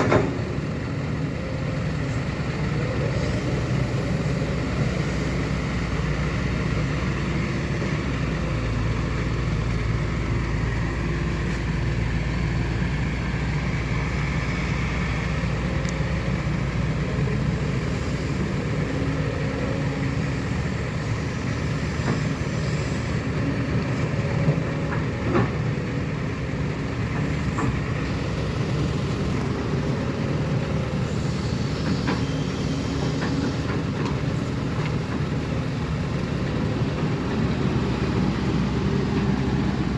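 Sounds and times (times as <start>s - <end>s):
diesel earthmoving machinery running: 0.0s - 39.9s.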